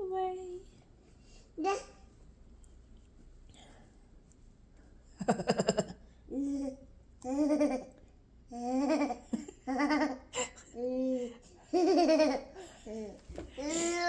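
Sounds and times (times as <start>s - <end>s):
toddler giggling: 11.7s - 13.1s.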